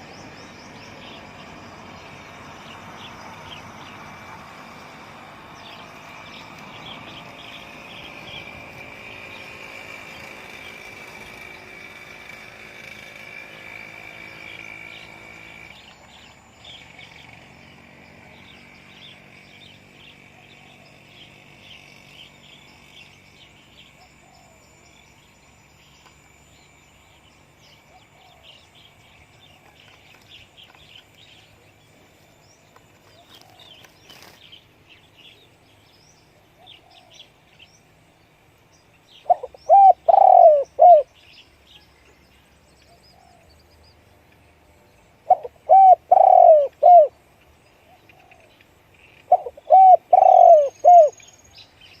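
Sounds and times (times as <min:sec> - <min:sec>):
small birds chirping: 0:00.0 - 0:52.0
dove cooing: 0:39.2 - 0:41.1, 0:45.2 - 0:47.1, 0:49.3 - 0:51.2.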